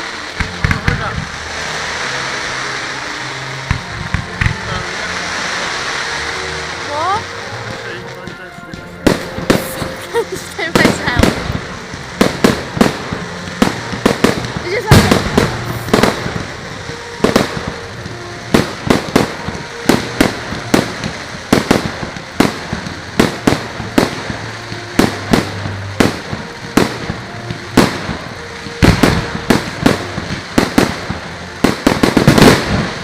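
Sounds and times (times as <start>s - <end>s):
continuous rumble: 0.0s - 33.0s
fireworks bangs and cracks: 0.0s - 33.0s.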